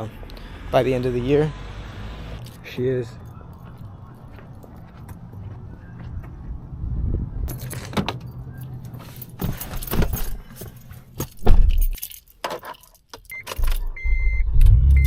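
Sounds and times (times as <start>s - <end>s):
keys jangling and clicking: 7.5s - 13.9s
heavy thump: 11.4s - 11.9s
short electronic beep: 13.3s - 15.0s.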